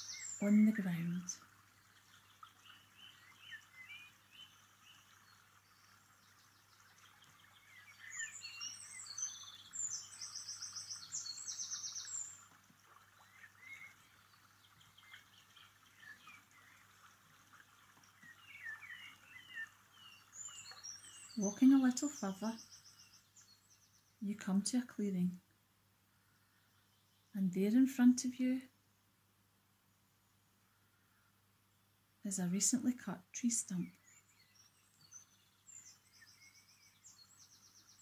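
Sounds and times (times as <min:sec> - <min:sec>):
songbirds singing: 0:00.0 - 0:25.5, 0:26.1 - 0:28.8, 0:29.8 - 0:38.0.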